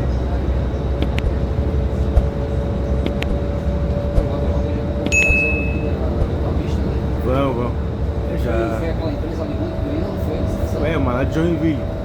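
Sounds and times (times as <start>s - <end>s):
bus engine droning: 0.0s - 12.0s
road rumble: 0.0s - 12.0s
high electronic beep: 5.2s - 5.9s.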